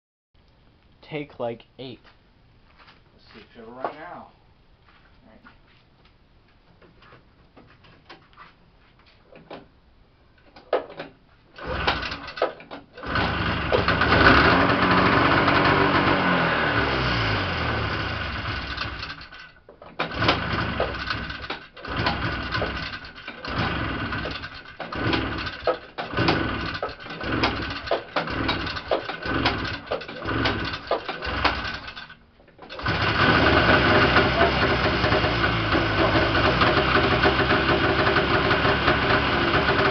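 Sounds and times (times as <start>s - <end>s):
snowmobile engine sputtering: 13.0s - 19.1s, 21.9s - 31.9s, 32.8s - 39.9s.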